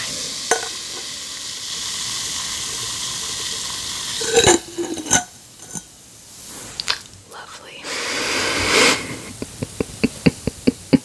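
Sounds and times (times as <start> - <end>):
bath bomb fizzing in water: 0.0 - 7.1.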